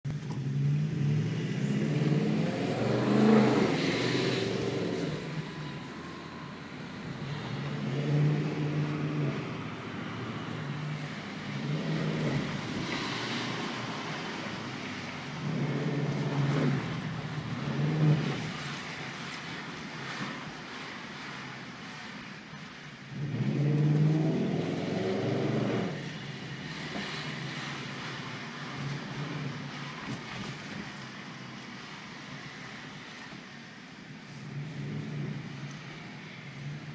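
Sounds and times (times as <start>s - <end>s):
car engine revving: 0.3s - 19.0s, 23.2s - 26.1s.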